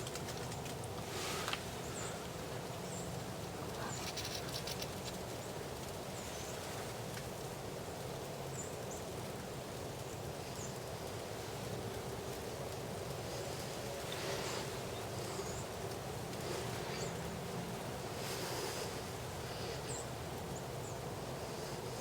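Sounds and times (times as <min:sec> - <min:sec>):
outdoor background hiss: 0:00.0 - 0:22.0
small birds chirping: 0:01.8 - 0:06.7, 0:13.2 - 0:22.0.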